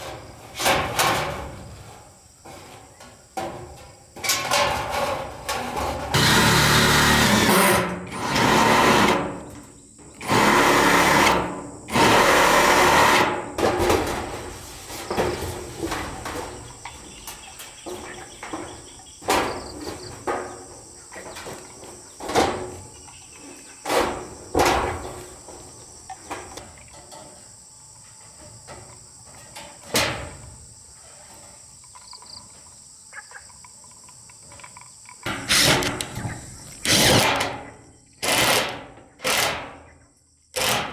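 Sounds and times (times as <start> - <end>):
bursts of tool noise: 4.9 - 16.8, 35.2 - 39.8, 40.6 - 40.9.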